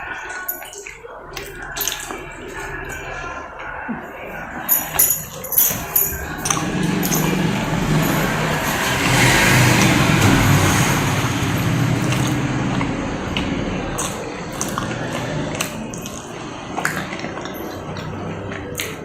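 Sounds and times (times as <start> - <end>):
vehicle engine passing by: 6.1 - 19.0.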